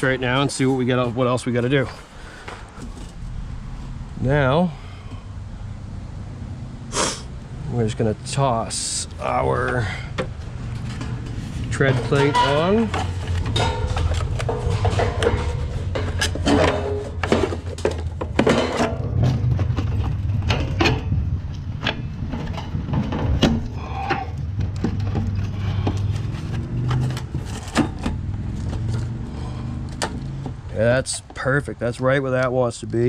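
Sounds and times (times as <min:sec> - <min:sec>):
steady low hum: 0:00.2 - 0:30.6
sheet metal knocking and rattling: 0:10.1 - 0:28.4.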